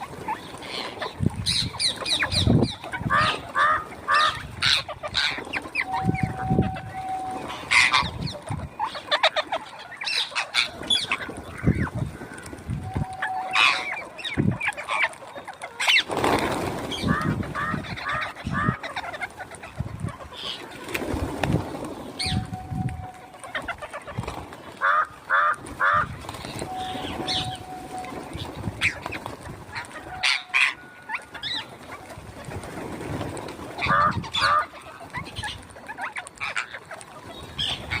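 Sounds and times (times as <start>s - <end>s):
parrots squawking and chattering: 0.0s - 12.4s, 13.0s - 21.1s, 23.1s - 27.8s, 28.4s - 32.0s, 33.8s - 38.0s.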